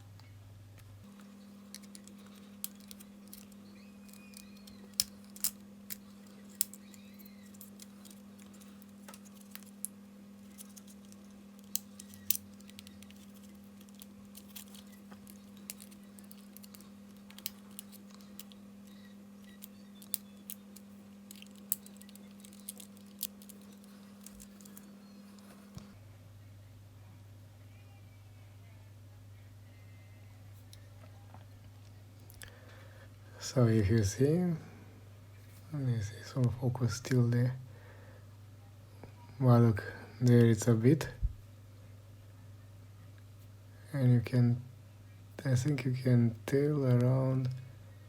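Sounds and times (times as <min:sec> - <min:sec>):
faint electrical hum: 0:00.0 - 0:48.0
plastic controller parts clicking: 0:01.7 - 0:09.8, 0:10.5 - 0:18.6, 0:19.4 - 0:24.8.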